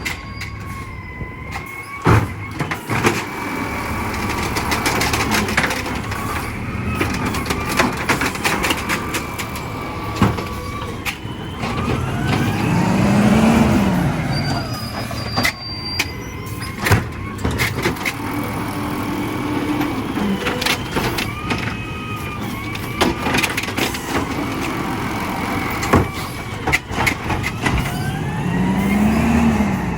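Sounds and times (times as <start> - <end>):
garbage truck engine revving: 0.0 - 29.9
metal clanks and knocks: 4.2 - 12.6.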